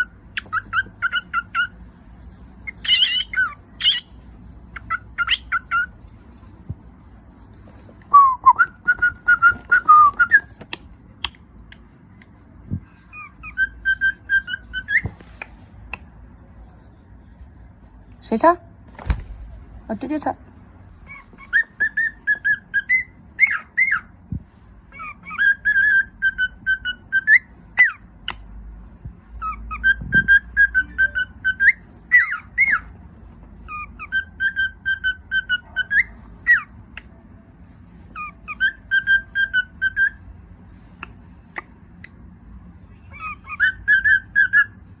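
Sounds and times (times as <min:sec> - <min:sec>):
cockatiel whistling song: 0:00.0 - 0:01.8, 0:02.6 - 0:06.1, 0:08.1 - 0:10.7, 0:12.7 - 0:16.2, 0:21.1 - 0:24.1, 0:24.9 - 0:28.4, 0:29.3 - 0:32.9, 0:33.6 - 0:37.1, 0:38.1 - 0:40.3, 0:43.0 - 0:45.0.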